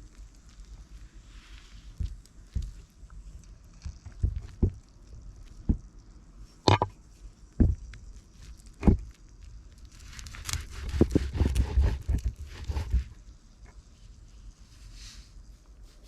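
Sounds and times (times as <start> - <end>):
soft thuds: 7.6 - 7.9.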